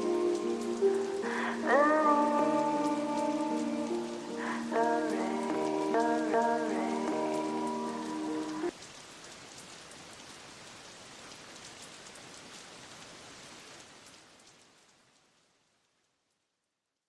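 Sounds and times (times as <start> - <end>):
raindrop ticks: 0.0 - 10.4
rain hissing: 0.0 - 16.0.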